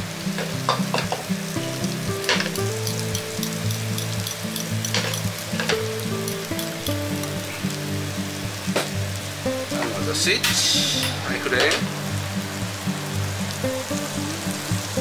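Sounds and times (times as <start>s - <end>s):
vegetables sizzling in oil: 0.0s - 15.0s
oil spitting: 0.4s - 7.9s.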